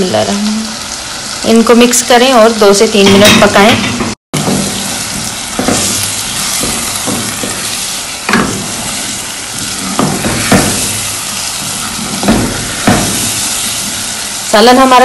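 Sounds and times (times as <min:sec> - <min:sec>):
food sizzling in oil: 0:00.0 - 0:15.0
pot knocking on stove grate: 0:03.1 - 0:08.8, 0:09.6 - 0:11.1, 0:12.1 - 0:13.5
spatula stirring: 0:04.4 - 0:14.7.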